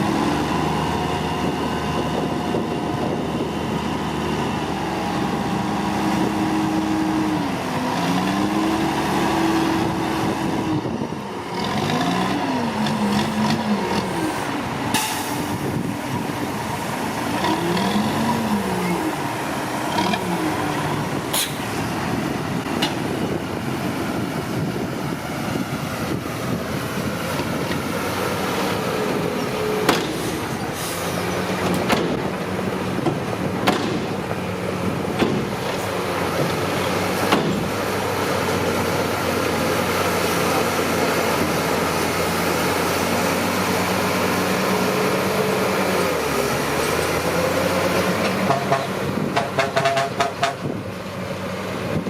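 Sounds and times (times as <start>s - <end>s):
bulldozer diesel engine revving: 0.0s - 52.0s
sharp knocks: 29.9s - 30.3s, 33.0s - 34.4s, 35.2s - 35.8s, 37.3s - 37.8s, 48.5s - 50.7s.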